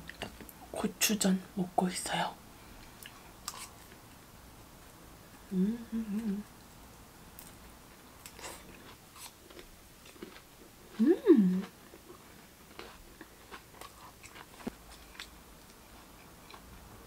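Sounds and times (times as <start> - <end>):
person humming mmm: 5.5 - 6.6, 11.0 - 11.8
close-mouthed chewing: 8.2 - 16.7.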